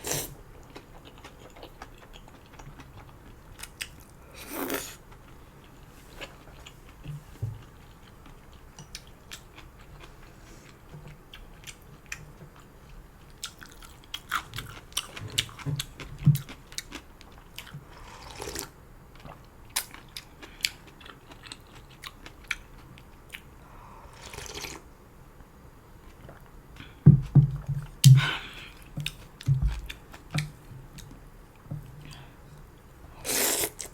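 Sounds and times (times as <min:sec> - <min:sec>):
slurping noodles: 0:33.2 - 0:33.9.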